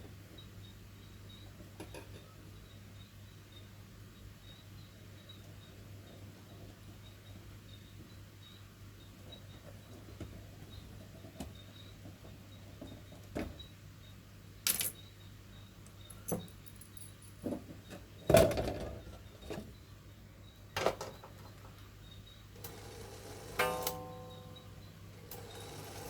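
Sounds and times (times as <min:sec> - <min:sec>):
small metallic clinks and taps: 0:14.6 - 0:15.0, 0:15.8 - 0:17.6.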